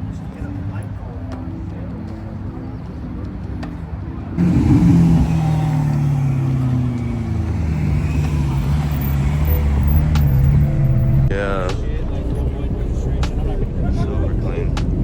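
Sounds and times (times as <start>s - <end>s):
loud car engine: 4.4s - 11.4s
car engine idling: 4.4s - 15.0s.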